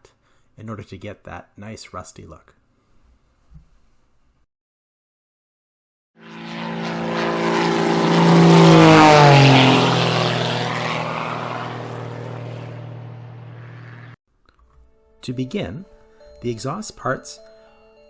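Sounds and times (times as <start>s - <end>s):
propeller aircraft flying past: 6.2s - 14.2s.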